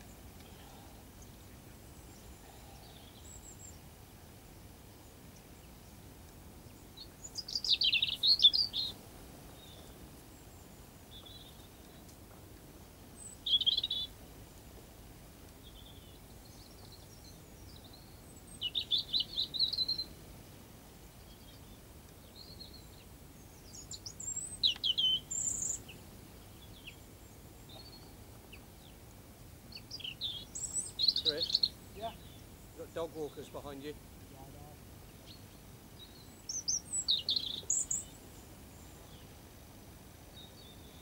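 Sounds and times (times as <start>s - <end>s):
songbirds chirping and singing: 0.0s - 12.4s, 13.1s - 14.8s, 15.4s - 20.3s, 21.0s - 39.4s
faint background noise: 0.0s - 41.0s.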